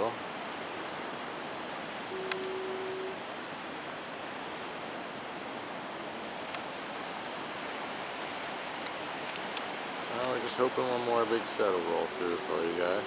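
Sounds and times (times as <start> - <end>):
ocean surf rushing: 0.0 - 13.0
faint ticks: 2.2 - 2.6.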